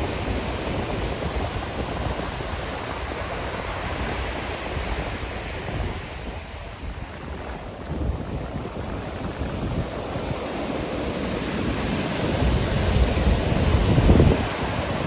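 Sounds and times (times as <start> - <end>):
ocean surf washing ashore: 0.0 - 15.0.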